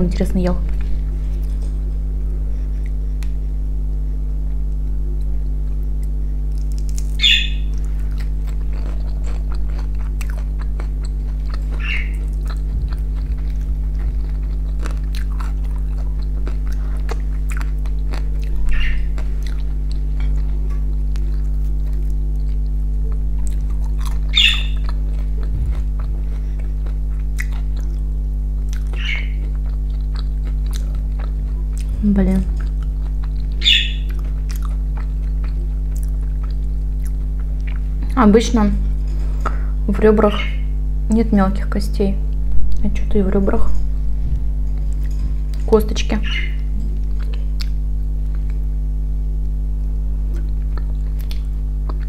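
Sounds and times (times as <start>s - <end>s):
steady low hum: 0.0s - 52.0s
chewing and mouth sounds: 5.2s - 38.3s, 44.3s - 48.6s, 50.3s - 52.0s.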